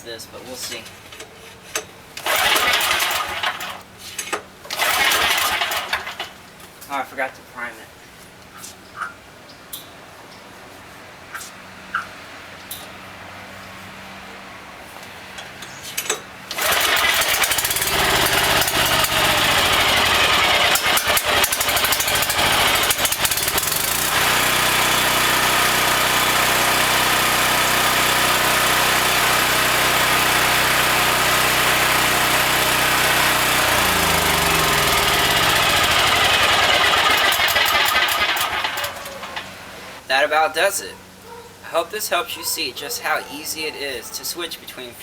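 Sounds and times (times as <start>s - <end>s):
portable generator engine running: 2.2s - 3.8s, 4.7s - 6.2s, 16.5s - 40.0s
cord pull: 2.2s - 6.3s, 16.0s - 24.4s, 32.7s - 39.5s.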